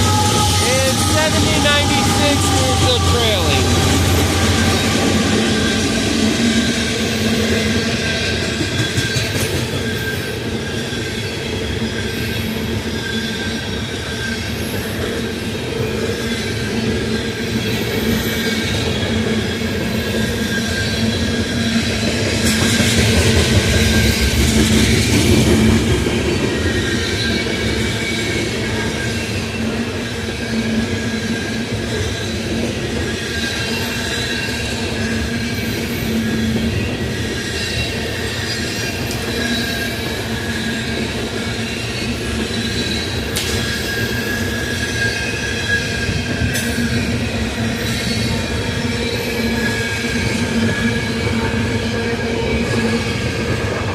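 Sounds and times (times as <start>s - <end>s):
train wheels rumbling on rails: 0.0s - 53.9s.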